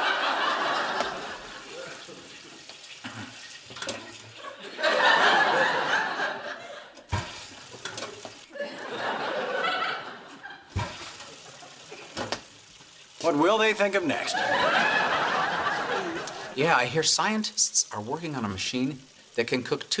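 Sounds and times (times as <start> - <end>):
studio audience laughing: 0.0 - 2.6, 4.3 - 7.1, 8.5 - 12.1, 14.2 - 16.6.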